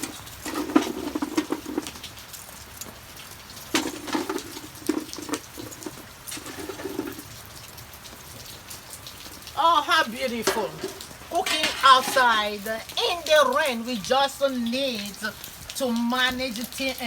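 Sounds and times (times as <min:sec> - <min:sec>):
charcoal lumps clattering: 0:00.0 - 0:02.2, 0:02.8 - 0:07.6, 0:09.5 - 0:13.4
steady rain pattering: 0:00.0 - 0:17.0.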